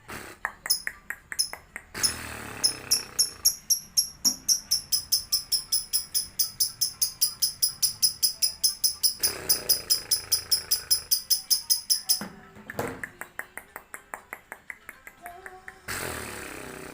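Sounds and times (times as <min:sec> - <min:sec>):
lovebird chattering chirps: 0:00.7 - 0:12.2.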